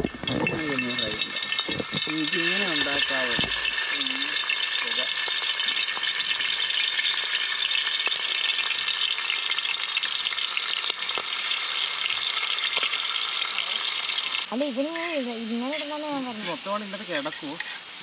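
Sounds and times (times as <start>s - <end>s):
prawns sizzling in hot oil: 0.0s - 18.0s.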